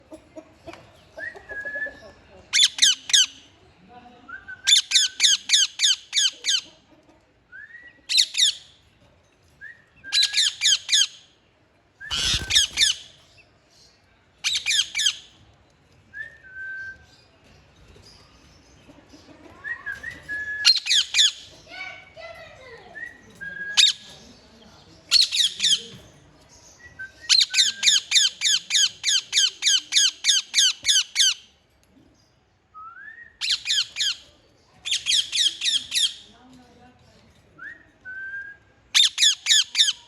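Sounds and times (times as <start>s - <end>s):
parrot squawking: 12.1s - 13.1s.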